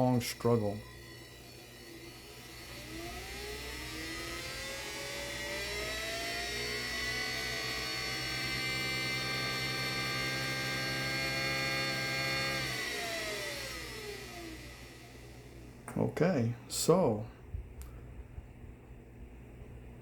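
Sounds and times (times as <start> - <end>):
electric motor whining: 0.0 - 15.6
low electrical hum: 0.0 - 20.0.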